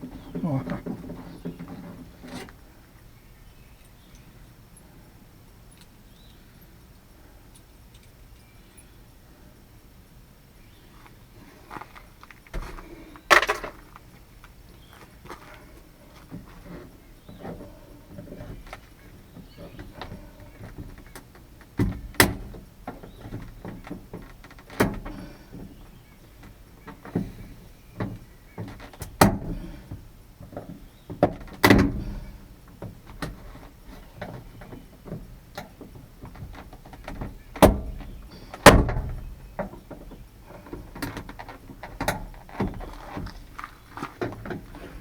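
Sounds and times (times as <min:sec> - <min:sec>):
knocks and clunks on car door: 0:36.0 - 0:39.6.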